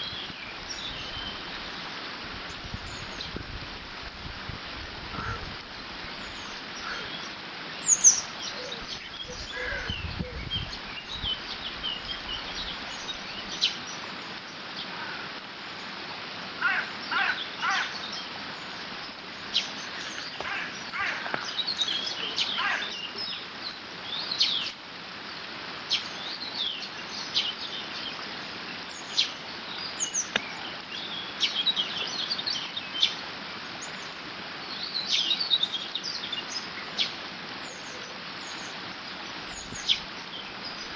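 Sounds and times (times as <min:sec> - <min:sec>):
bird chirps and calls: 0:06.2 - 0:13.9, 0:19.4 - 0:23.5.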